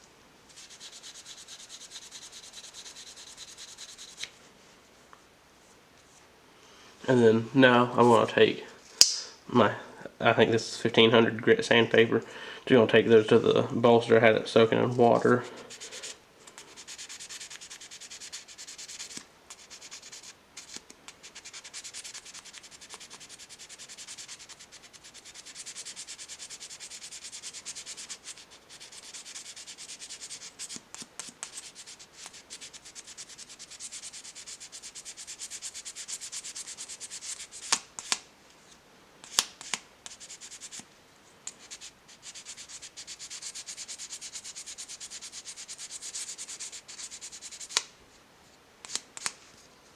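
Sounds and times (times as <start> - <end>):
sandpaper scratching on metal: 0.5 - 4.2, 15.6 - 38.1, 39.6 - 40.8, 41.6 - 47.8.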